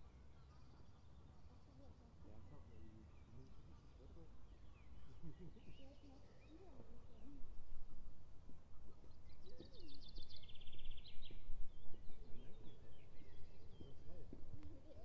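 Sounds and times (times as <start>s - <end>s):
faint bird calls: 0.0s - 15.0s
songbird trilling: 9.0s - 15.0s.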